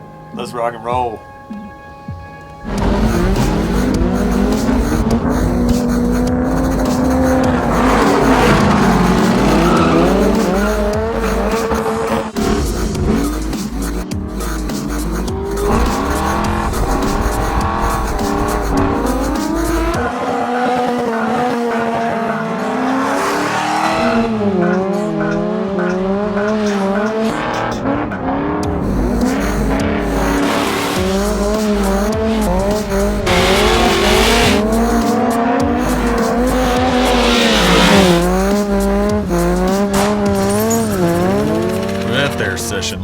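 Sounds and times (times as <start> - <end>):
background music: 0.0 - 43.0
car engines revving: 0.0 - 43.0
tyres squealing: 2.7 - 22.0, 28.8 - 43.0.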